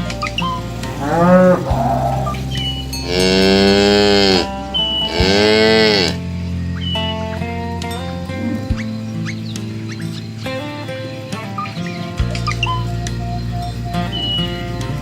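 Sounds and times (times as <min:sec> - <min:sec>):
cattle mooing: 0:00.0 - 0:06.3
soft background music: 0:00.0 - 0:15.0.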